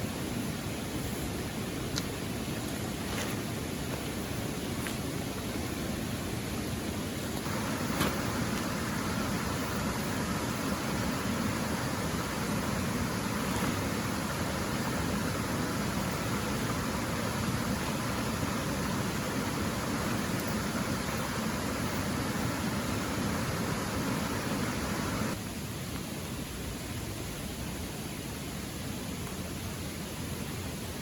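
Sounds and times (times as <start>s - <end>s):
rain hissing: 0.0s - 31.0s
rushing water: 0.0s - 31.0s.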